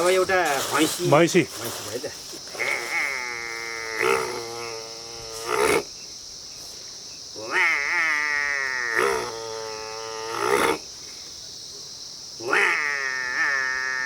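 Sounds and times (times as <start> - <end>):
man imitating animal lowing: 12.4 - 14.0.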